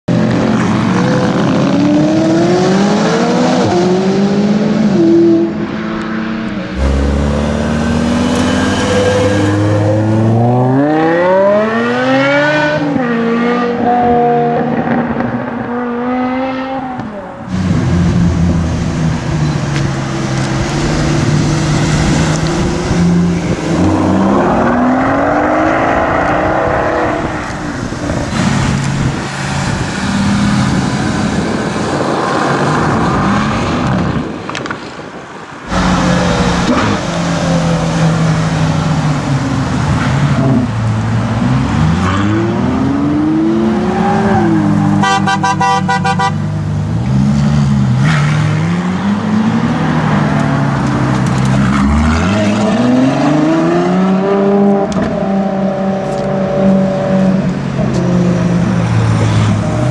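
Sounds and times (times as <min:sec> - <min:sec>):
car accelerating with rising wail: 0:00.3 - 0:34.2
car engine pulling away: 0:06.6 - 0:13.9.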